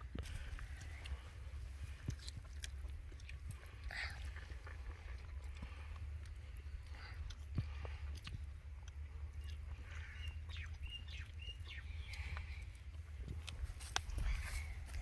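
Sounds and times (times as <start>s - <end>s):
faint chewing and smacks: 0.0s - 15.0s
bird chirping: 9.3s - 12.8s.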